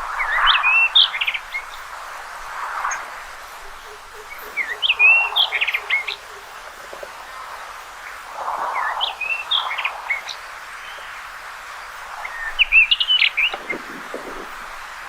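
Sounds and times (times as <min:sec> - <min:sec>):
bird singing whistled notes: 0:00.0 - 0:01.8, 0:03.6 - 0:06.4
steady background noise: 0:00.0 - 0:15.0.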